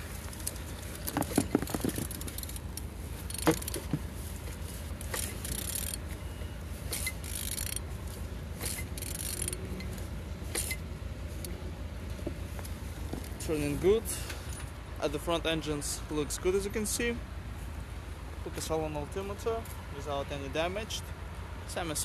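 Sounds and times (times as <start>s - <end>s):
engine metallic clicks and clatters: 0.0s - 17.1s
steady low hum: 0.0s - 18.6s.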